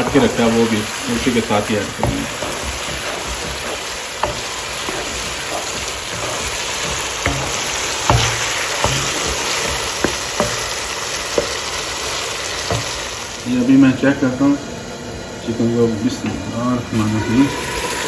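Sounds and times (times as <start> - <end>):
wooden spatula stirring: 0.0 - 13.5
chicken sizzling in oil: 0.0 - 18.0.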